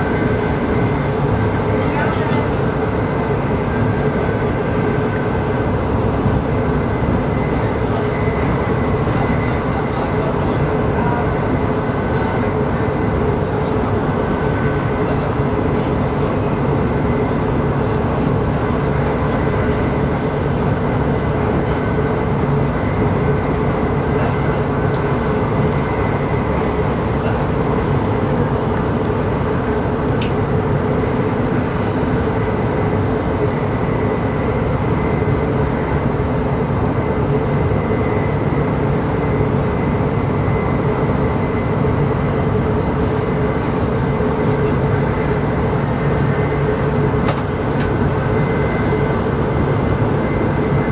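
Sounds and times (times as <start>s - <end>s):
wheels rumbling on rail: 0.0s - 50.9s
click: 30.1s - 30.4s.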